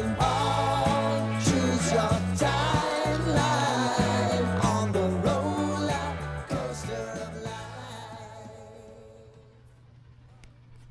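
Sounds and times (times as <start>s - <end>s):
stepping bass line: 0.0s - 8.3s
pop-rock song: 0.0s - 9.3s
person singing: 0.0s - 9.4s.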